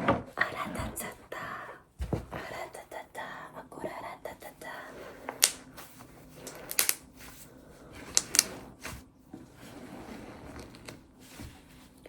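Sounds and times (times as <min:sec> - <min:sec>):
slime being kneaded by hand: 0:05.3 - 0:09.0.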